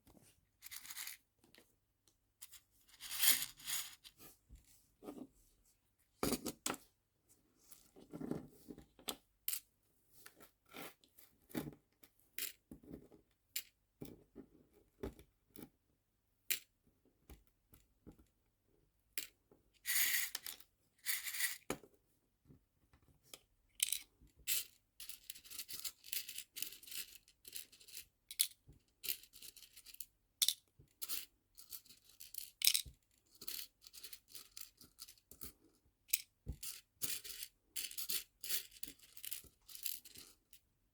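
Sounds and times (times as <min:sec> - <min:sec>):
small charms clicking against plastic boxes: 0:31.8 - 0:34.9.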